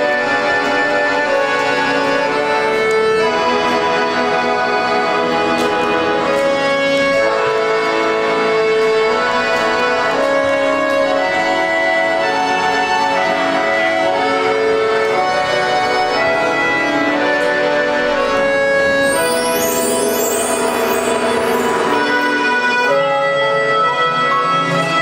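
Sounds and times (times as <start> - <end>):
children's band playing: 0.0 - 25.0.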